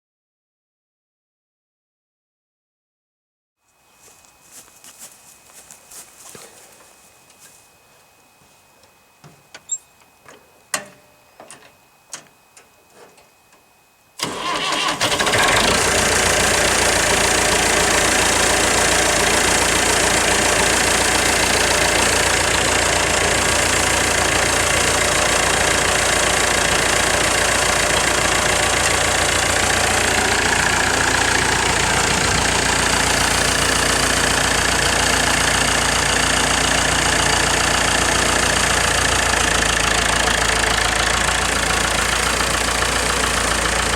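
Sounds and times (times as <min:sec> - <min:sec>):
engine starting and running: 0:14.2 - 0:43.9.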